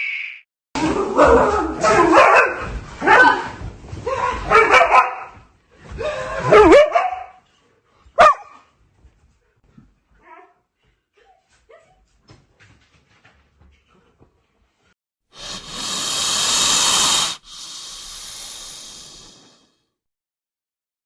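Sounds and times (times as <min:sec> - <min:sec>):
loud rushing hiss: 0:15.4 - 0:19.6.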